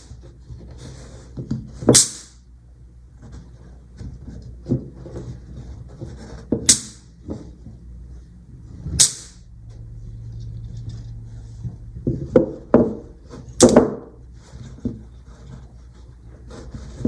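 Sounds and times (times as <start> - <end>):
magnetic balls snapping together: 2.0 - 2.4, 6.7 - 7.1, 9.0 - 9.4.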